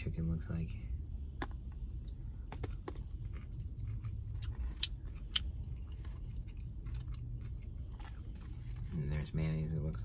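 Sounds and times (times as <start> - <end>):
low hum: 0.0 - 10.0
crunchy chewing: 1.2 - 9.6.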